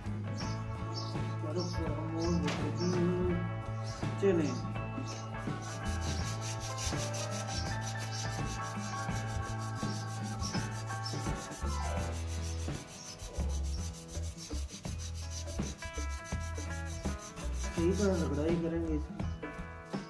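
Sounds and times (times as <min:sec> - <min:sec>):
background music: 0:00.0 - 0:20.0
sandpaper rubbing wood: 0:05.1 - 0:18.6.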